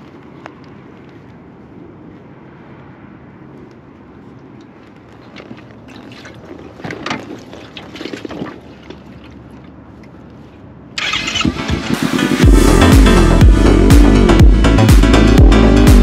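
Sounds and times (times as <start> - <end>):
motorcycle engine starting: 11.0 - 16.0
electronic dance music: 11.5 - 16.0.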